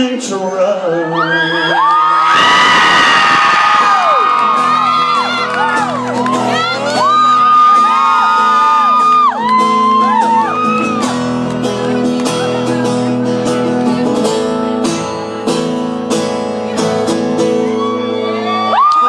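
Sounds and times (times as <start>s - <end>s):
country band playing: 3.3s - 19.0s
strummed acoustic guitar: 3.8s - 18.0s.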